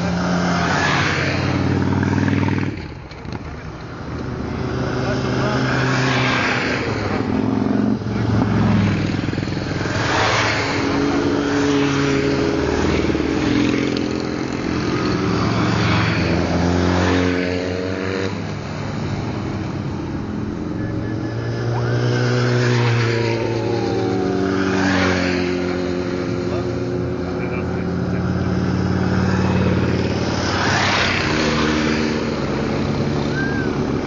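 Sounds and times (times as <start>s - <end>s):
motorcycles riding past: 0.0s - 34.0s.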